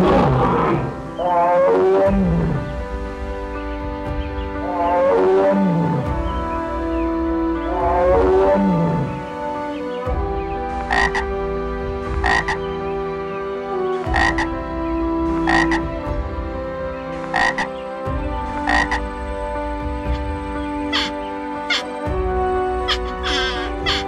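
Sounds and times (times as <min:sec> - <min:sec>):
frog croaking: 0:10.8 - 0:11.3, 0:12.2 - 0:12.6, 0:14.0 - 0:14.6, 0:15.4 - 0:15.9, 0:17.2 - 0:17.8, 0:18.6 - 0:19.1, 0:20.1 - 0:21.9, 0:22.8 - 0:24.0.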